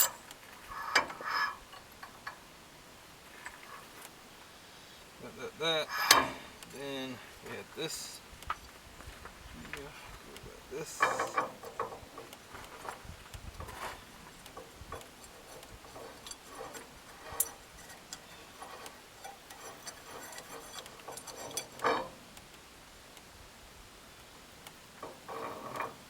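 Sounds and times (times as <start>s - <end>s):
metal parts clicking and tapping: 0.0s - 2.5s, 5.8s - 6.8s, 10.8s - 22.5s, 24.6s - 26.0s
metal part knocking: 5.9s - 6.5s, 11.0s - 13.0s, 14.5s - 22.2s, 25.0s - 26.0s.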